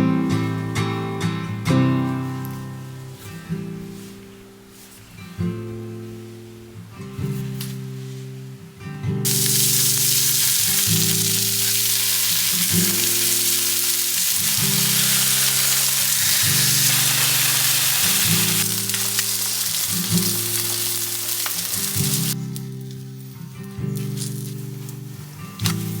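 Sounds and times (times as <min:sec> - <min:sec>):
food sizzling in a pan: 0:09.3 - 0:22.4.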